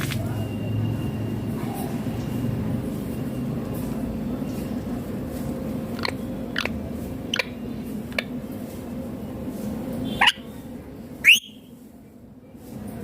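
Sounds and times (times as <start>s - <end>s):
parakeet screeching calls: 10.2s - 10.5s.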